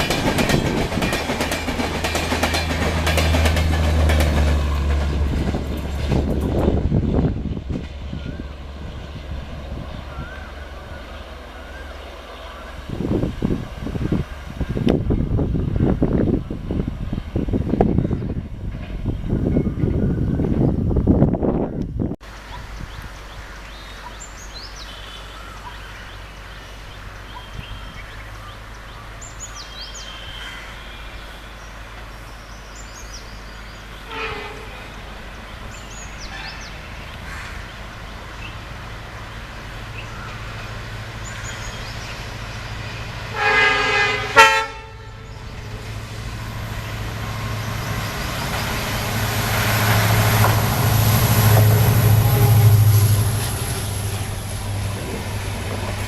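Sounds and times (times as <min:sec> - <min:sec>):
train rumble: 0:00.0 - 0:56.0
train horn: 0:34.0 - 0:35.0, 0:36.2 - 0:36.7, 0:43.3 - 0:45.5, 0:51.6 - 0:54.2.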